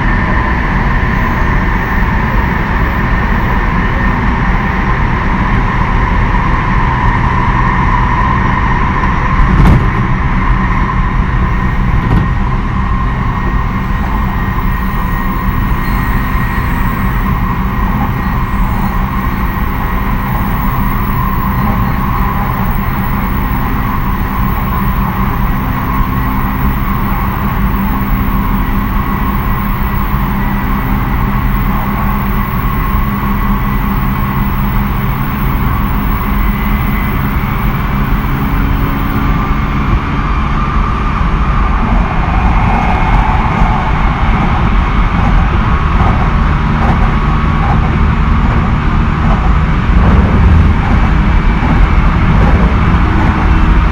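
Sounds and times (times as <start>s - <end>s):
electric motor whine: 0.0s - 7.5s, 11.1s - 41.2s
train wheels rumbling on rail: 0.0s - 53.9s.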